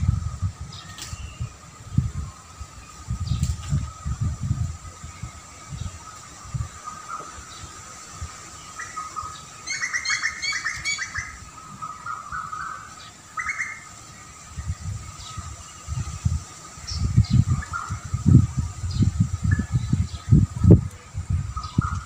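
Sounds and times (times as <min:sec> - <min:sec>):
low rumbles: 0:00.0 - 0:07.1
small birds chirping: 0:00.0 - 0:22.0.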